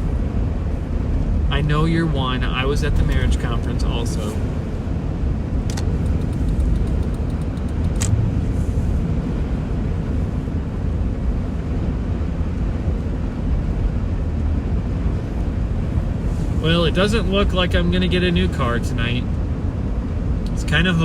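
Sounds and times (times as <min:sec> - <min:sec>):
car engine and tyres rumbling: 0:00.0 - 0:21.0
sharp click: 0:05.7 - 0:08.2.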